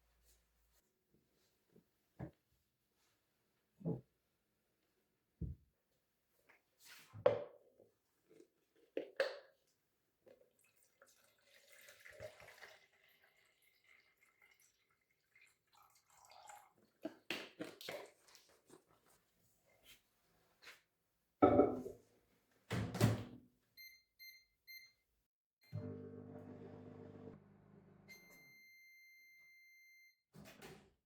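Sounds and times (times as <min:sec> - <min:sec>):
soft water trickle: 0:10.5 - 0:17.0.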